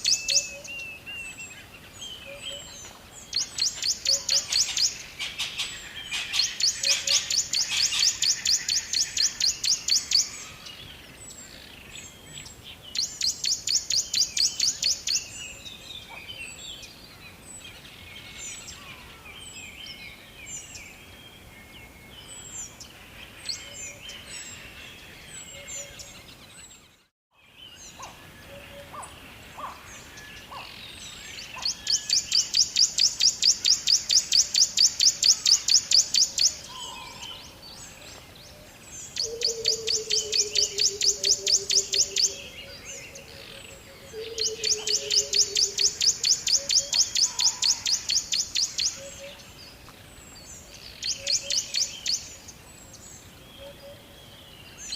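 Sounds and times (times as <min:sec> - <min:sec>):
bird chirps and trills: 0:00.0 - 0:16.6, 0:27.7 - 0:38.1, 0:38.7 - 0:49.6.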